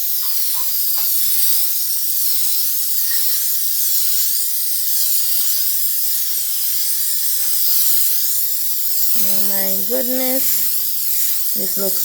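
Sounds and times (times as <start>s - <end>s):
aerosol spray paint hissing: 0.0s - 12.0s.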